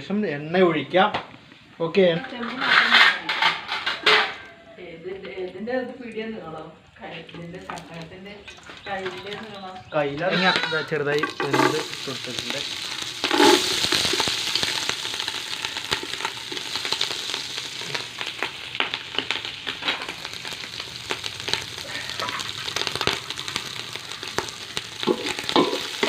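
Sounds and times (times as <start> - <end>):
oil spitting crackles: 5.4 - 26.0
onions sizzling in hot oil: 7.4 - 26.0.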